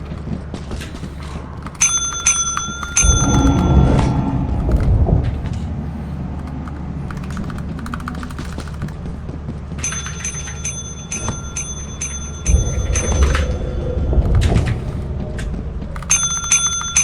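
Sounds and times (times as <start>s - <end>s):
faint clicks: 0.0s - 17.0s
low rumble: 0.0s - 17.0s
small bell ringing: 1.8s - 4.1s, 9.7s - 14.0s, 16.1s - 17.0s.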